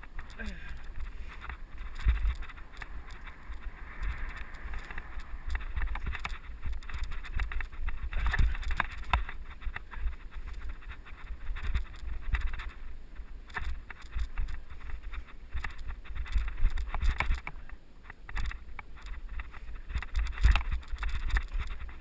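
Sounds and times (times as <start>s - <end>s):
wind buffeting microphone: 0.0s - 17.5s
bike clicks and rattles: 0.0s - 22.0s.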